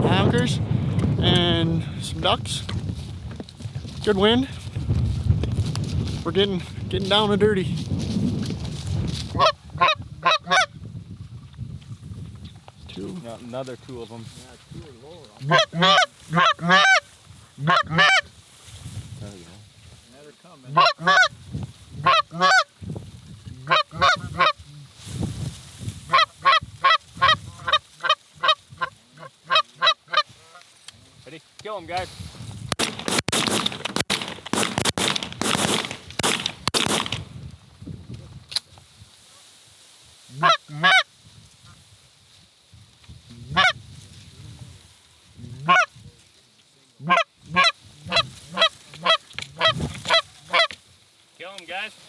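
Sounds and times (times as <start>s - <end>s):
goose honking: 15.4s - 17.0s, 17.6s - 18.2s, 20.7s - 21.3s, 22.0s - 22.7s, 40.4s - 41.0s, 47.0s - 50.8s.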